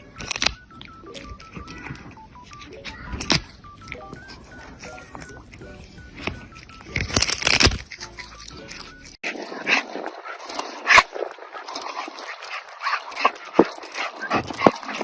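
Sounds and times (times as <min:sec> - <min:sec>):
dog whimpering and yipping: 0:08.2 - 0:15.0.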